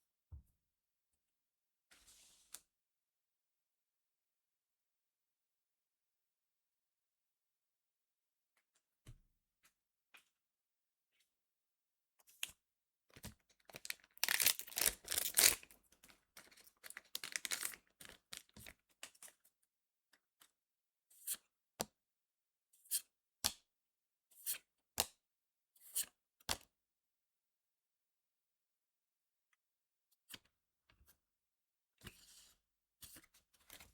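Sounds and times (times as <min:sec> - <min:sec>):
foil pack tearing: 0:13.7 - 0:15.7, 0:16.7 - 0:18.6
cards snapping: 0:14.2 - 0:15.6.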